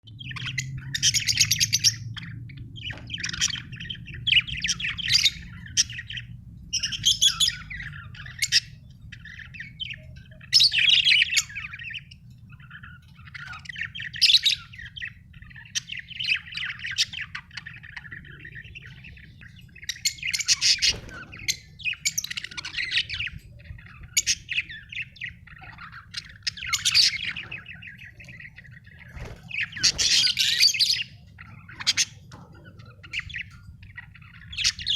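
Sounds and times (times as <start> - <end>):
budgies chirping and warbling: 0.1 - 34.9
faint low hum: 0.1 - 34.9.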